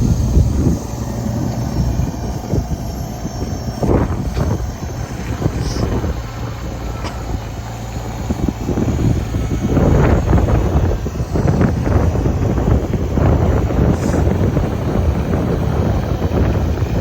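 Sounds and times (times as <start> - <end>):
tractor engine running: 0.0 - 17.0
wind buffeting microphone: 0.0 - 17.0.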